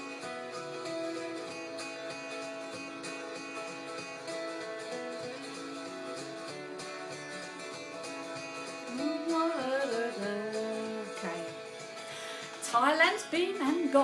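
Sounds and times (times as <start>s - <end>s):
acoustic guitar playing: 0.0s - 14.0s
person singing wordlessly: 8.9s - 11.9s, 12.5s - 14.0s.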